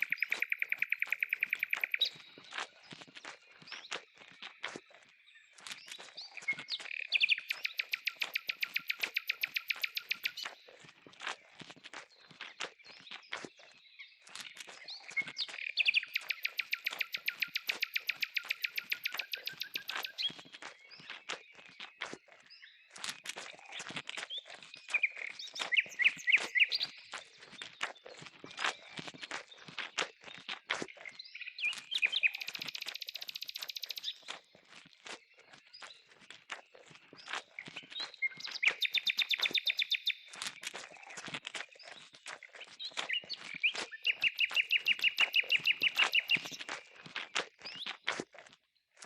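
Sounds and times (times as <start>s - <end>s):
bird chirping: 0.0s - 4.0s, 5.2s - 10.8s, 12.9s - 22.0s, 23.6s - 29.0s, 31.0s - 34.5s, 36.7s - 48.0s.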